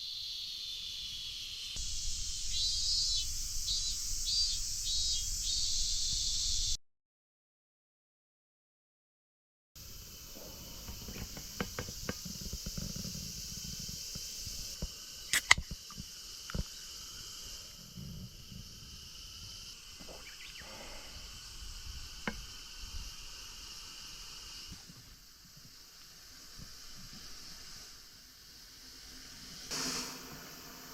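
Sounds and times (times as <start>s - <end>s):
high outdoor hiss: 0.0s - 6.8s, 9.8s - 30.9s.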